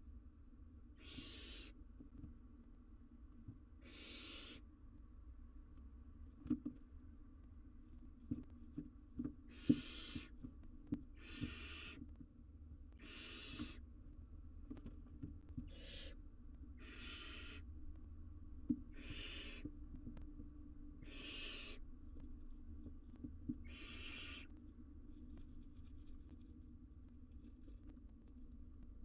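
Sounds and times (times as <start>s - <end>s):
owlet hissing begging call: 1.0s - 1.8s, 3.8s - 4.6s, 9.5s - 10.3s, 11.2s - 12.0s, 13.0s - 13.8s, 15.7s - 16.2s, 16.8s - 17.6s, 19.0s - 19.6s, 21.0s - 21.8s, 23.7s - 24.5s
faint scratches and taps: 5.7s - 7.6s, 8.2s - 12.3s, 14.6s - 15.7s, 19.6s - 20.5s, 22.1s - 28.9s.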